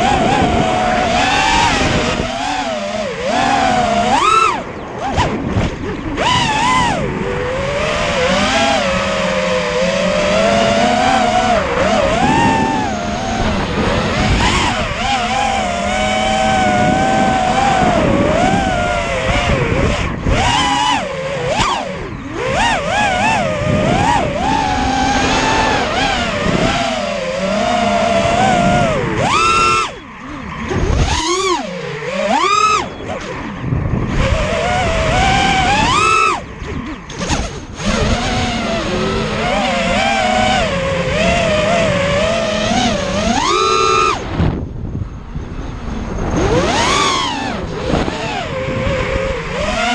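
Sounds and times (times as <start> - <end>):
quadcopter motors whining: 0.0 - 49.9.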